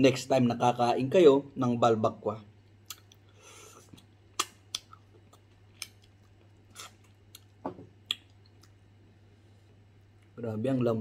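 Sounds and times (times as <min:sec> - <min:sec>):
wet chewing mouth smacks: 0:03.9 - 0:08.8.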